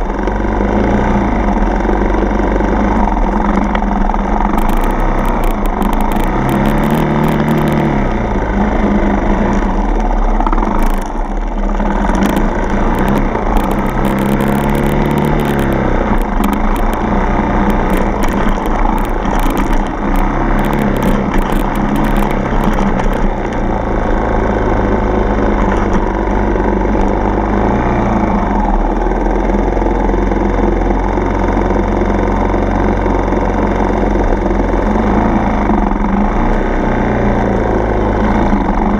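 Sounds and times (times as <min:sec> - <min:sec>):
dirt bike engine revving: 0:00.0 - 0:28.7
sharp clicks and knocks: 0:03.0 - 0:08.1, 0:09.3 - 0:24.0, 0:25.4 - 0:27.4.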